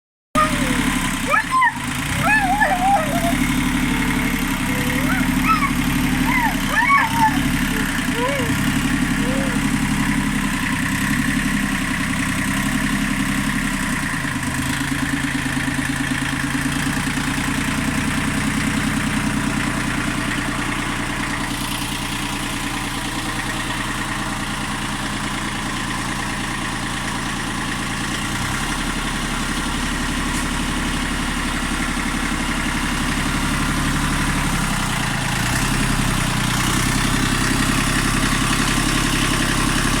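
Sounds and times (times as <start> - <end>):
tractor engine running: 0.4 - 40.0.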